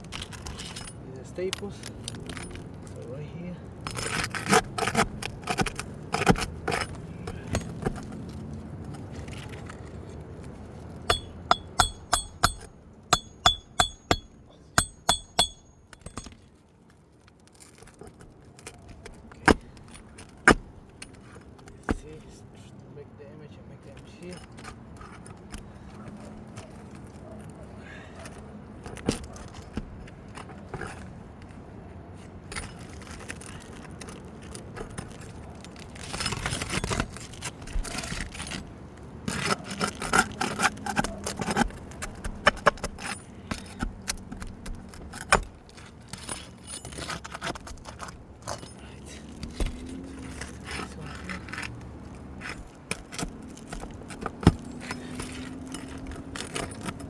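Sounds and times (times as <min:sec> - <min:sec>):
metallic scraping and clinking: 0:00.0 - 0:03.1, 0:03.8 - 0:08.4, 0:11.1 - 0:16.6, 0:39.3 - 0:57.0
sharp knocks: 0:11.1 - 0:16.4.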